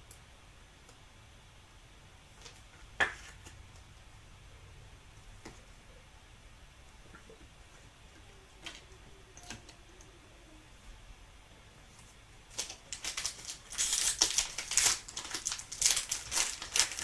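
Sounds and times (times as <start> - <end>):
foil wrapper tearing and crinkling: 12.5 - 17.0.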